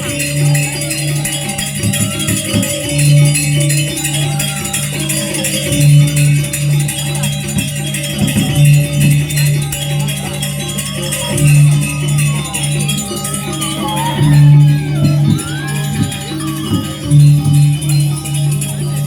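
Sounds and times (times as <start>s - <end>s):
gamelan struck notes: 0.0s - 19.0s
shimmering cymbals: 0.0s - 19.0s.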